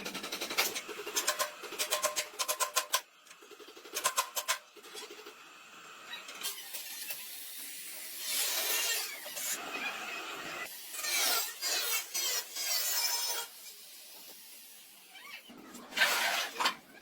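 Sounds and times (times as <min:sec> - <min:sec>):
rasping scrape: 0:15.8 - 0:16.8.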